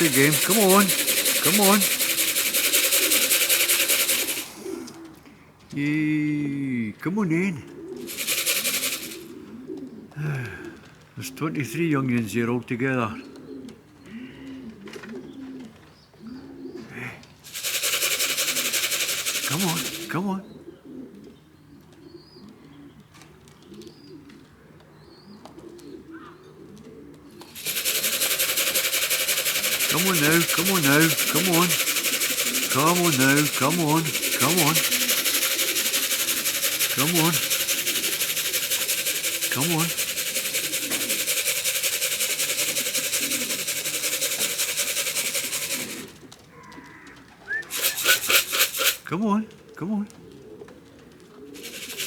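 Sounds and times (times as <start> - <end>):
grain shaken in a feed tin: 0.0 - 5.0, 8.0 - 9.4, 17.5 - 20.3, 27.4 - 46.2, 47.6 - 49.1, 51.6 - 52.0
pigeons cooing: 0.0 - 12.1, 13.0 - 52.0.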